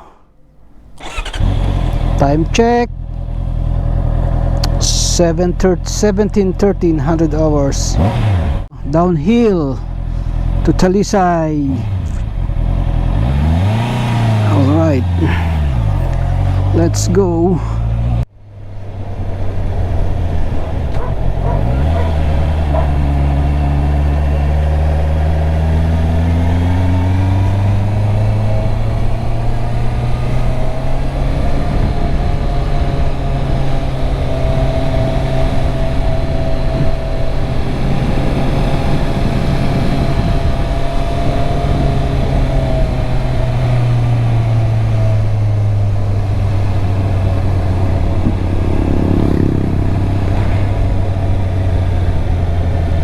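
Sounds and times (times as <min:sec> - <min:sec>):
motorcycle engine revving: 0:00.6 - 0:53.0
wind noise on microphone: 0:18.9 - 0:53.0.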